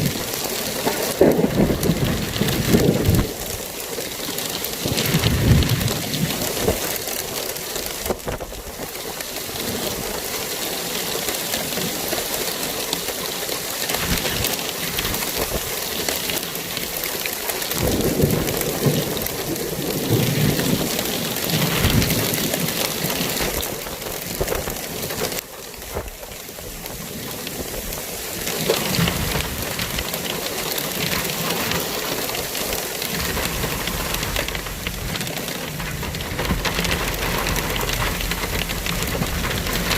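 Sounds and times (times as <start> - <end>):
rain falling steadily: 0.0 - 39.9
deep rumbles: 33.0 - 39.9.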